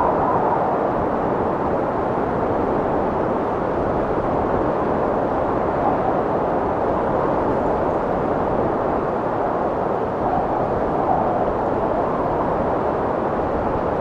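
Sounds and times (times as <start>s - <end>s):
strong wind blowing: 0.0s - 14.0s.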